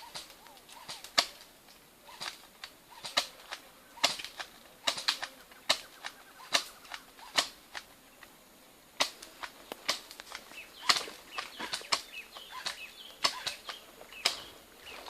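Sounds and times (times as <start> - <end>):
airsoft gun shots: 0.0 - 1.4, 3.0 - 7.8.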